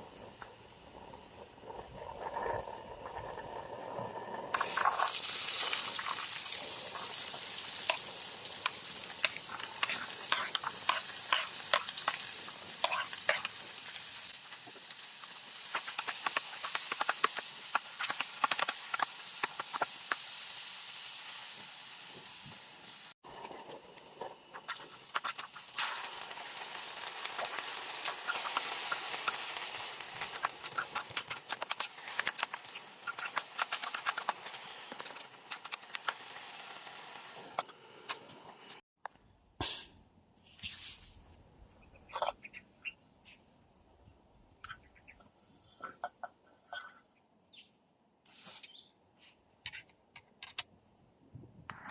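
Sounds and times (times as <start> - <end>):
food sizzling in a pan: 4.6 - 23.3, 23.9 - 37.9.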